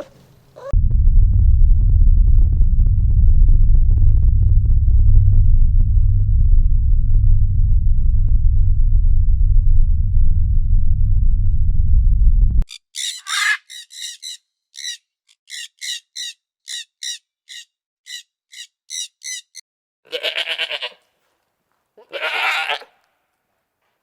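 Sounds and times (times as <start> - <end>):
bird short sharp calls: 0.0 - 0.7, 12.7 - 19.6
goat or sheep bleating: 20.0 - 21.2, 22.0 - 23.0.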